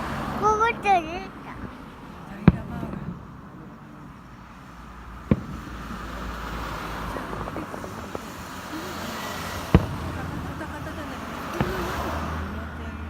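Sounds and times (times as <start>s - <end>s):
steady background noise: 0.0s - 13.0s
fireworks shell bang: 5.2s - 12.4s.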